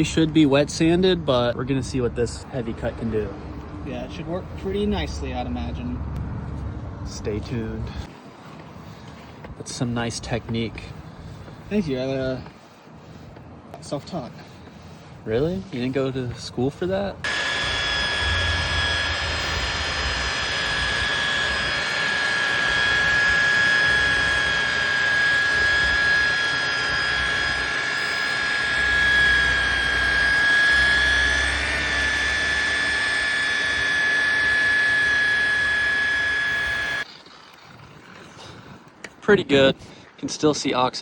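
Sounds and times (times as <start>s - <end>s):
electric polisher whining: 17.2s - 38.5s.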